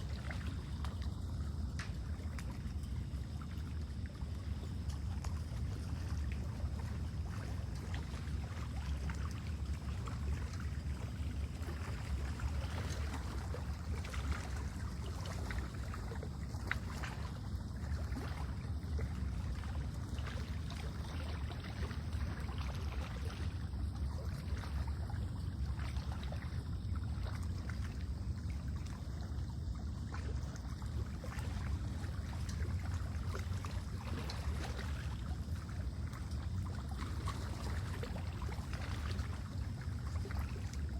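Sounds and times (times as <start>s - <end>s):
low rumble of wind: 0.0s - 40.9s
small waves lapping: 0.0s - 40.9s.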